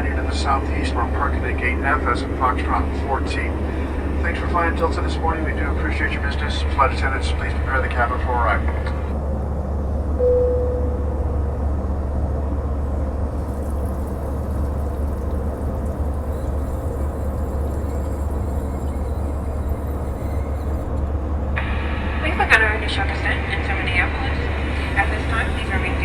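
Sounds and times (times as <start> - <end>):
aircraft cabin rumble: 0.0 - 26.0
single tone: 10.2 - 11.5.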